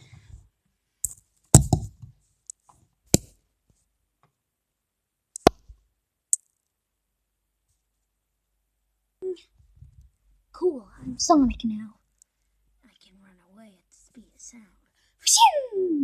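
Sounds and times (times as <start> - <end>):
objects knocking and clicking: 1.0 - 3.3.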